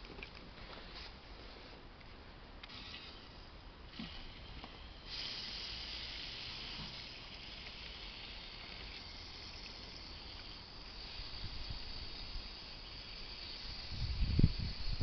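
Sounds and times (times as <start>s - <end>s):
water running into spray bottle: 4.0s - 15.0s.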